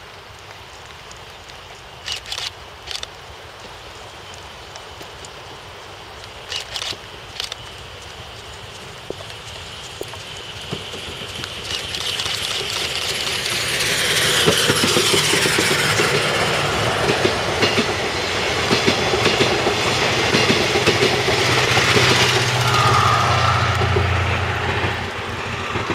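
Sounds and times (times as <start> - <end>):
train wheels clacking over rail joints: 6.5 - 25.9.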